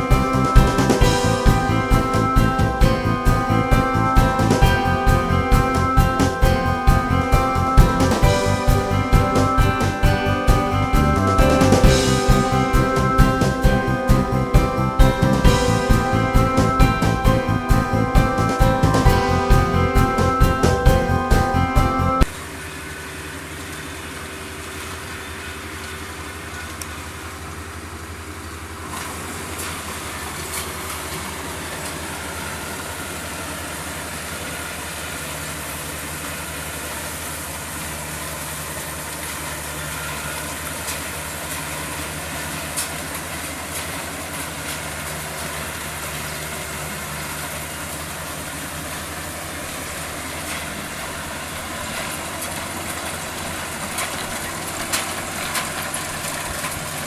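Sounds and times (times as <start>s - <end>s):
higher hum: 0.0s - 22.4s
combine harvester engine running: 0.0s - 57.0s.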